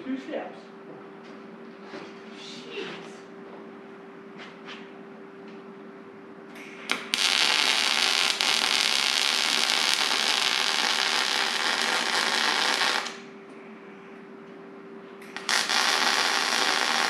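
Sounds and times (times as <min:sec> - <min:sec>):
faint steady hum: 0:00.0 - 0:17.0
welding arc starts: 0:06.6 - 0:13.3, 0:15.2 - 0:17.0
arc welding hiss: 0:06.9 - 0:13.2, 0:15.3 - 0:17.0.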